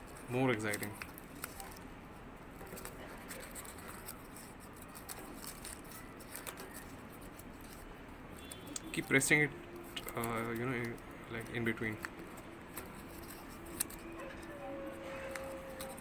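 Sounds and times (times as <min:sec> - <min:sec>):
paper rustling and crinkling: 0:02.6 - 0:07.9, 0:08.5 - 0:16.0.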